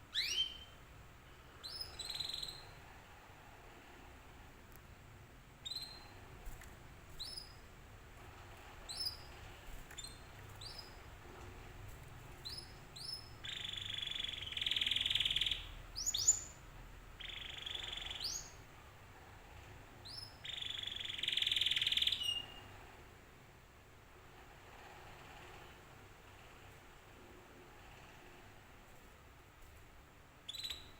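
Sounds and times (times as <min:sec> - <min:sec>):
canary chirping: 0:00.0 - 0:00.8, 0:01.6 - 0:02.8, 0:05.6 - 0:06.2, 0:07.1 - 0:07.7, 0:08.8 - 0:11.2, 0:12.3 - 0:18.7, 0:20.0 - 0:22.8, 0:30.4 - 0:30.9
canary buzzy trills: 0:00.1 - 0:00.8, 0:01.6 - 0:02.9, 0:05.6 - 0:07.7, 0:08.6 - 0:16.6, 0:17.2 - 0:23.0, 0:30.4 - 0:30.9.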